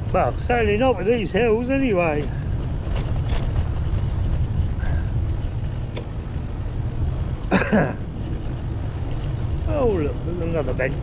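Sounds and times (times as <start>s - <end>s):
wind rumble on microphone: 0.0s - 11.0s
person clearing throat: 7.5s - 8.0s.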